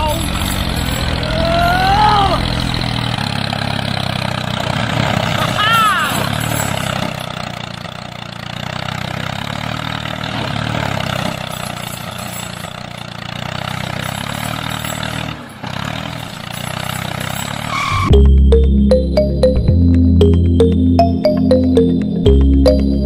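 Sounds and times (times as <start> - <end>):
vehicle engine running: 0.0 - 23.0
loud music: 18.0 - 23.0.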